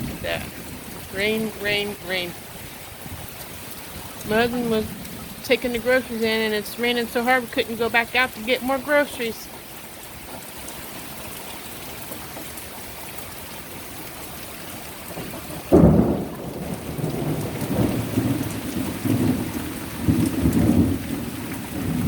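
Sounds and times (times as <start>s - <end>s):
thunder crack and rumbling: 0.0s - 6.5s, 15.1s - 22.0s
heavy rain falling: 0.0s - 22.0s.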